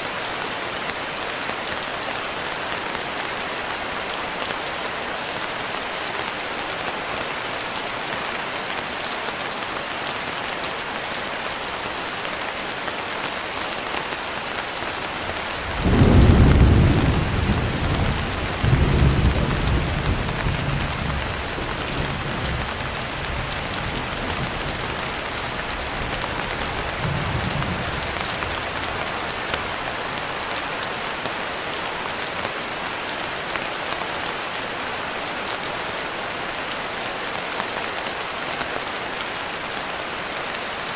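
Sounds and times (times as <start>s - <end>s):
heavy rain falling: 0.0s - 40.9s
thunder rumbling: 15.4s - 29.9s.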